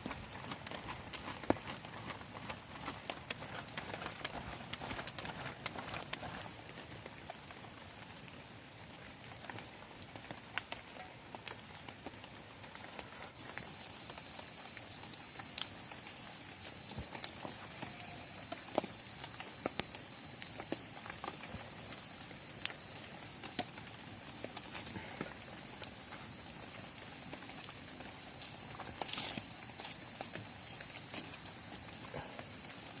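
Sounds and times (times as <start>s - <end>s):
insects trilling high: 13.3s - 33.0s.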